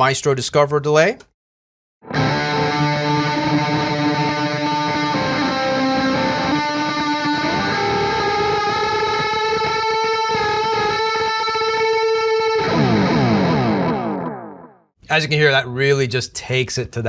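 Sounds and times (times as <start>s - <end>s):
electric guitar with delay: 2.0s - 14.8s.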